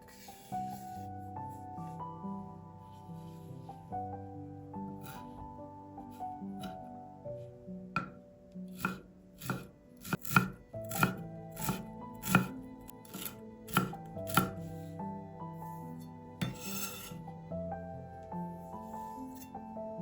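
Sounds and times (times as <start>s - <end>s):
knife chopping on cutting board: 8.8s - 12.5s, 13.1s - 14.6s, 16.4s - 17.1s.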